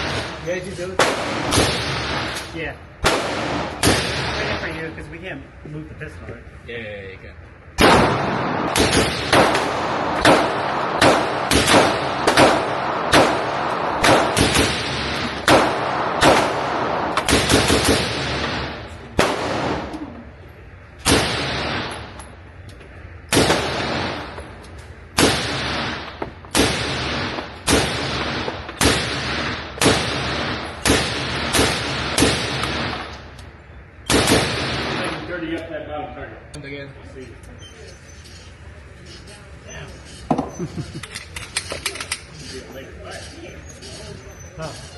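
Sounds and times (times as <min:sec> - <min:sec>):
gunshots echoing indoors: 0:01.0 - 0:04.7, 0:07.8 - 0:20.1, 0:21.0 - 0:22.3, 0:23.3 - 0:33.3, 0:34.0 - 0:35.4.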